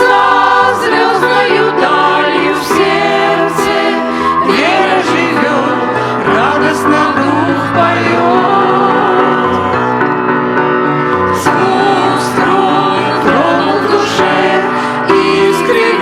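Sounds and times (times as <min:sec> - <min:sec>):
worship song with instruments: 0:00.0 - 0:16.0.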